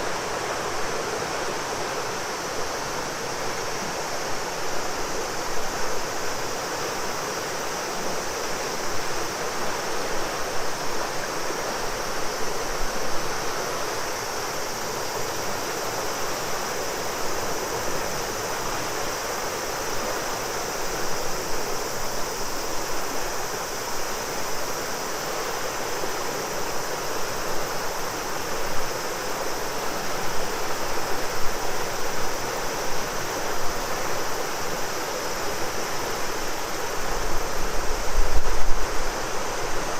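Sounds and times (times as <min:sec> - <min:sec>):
cicadas chorus: 0:00.0 - 0:39.9
river rushing: 0:00.0 - 0:39.9.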